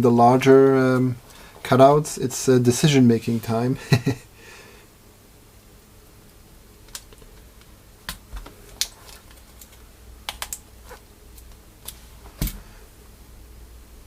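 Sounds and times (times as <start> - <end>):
keyboard switches clicking: 10.3 - 10.6.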